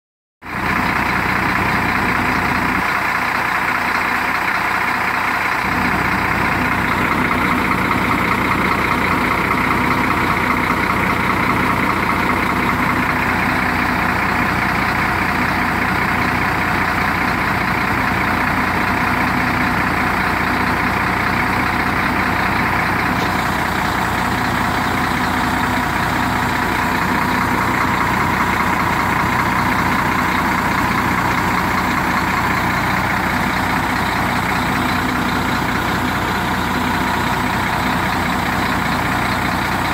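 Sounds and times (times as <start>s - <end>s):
diesel engine running: 0.4s - 39.9s.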